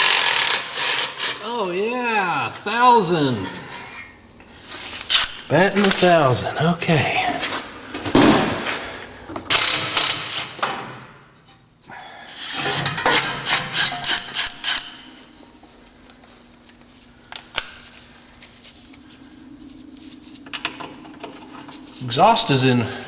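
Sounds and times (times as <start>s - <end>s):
ratchet clicks: 0.0s - 1.4s, 13.5s - 15.0s
metal tools clanking and rattling: 12.4s - 15.1s.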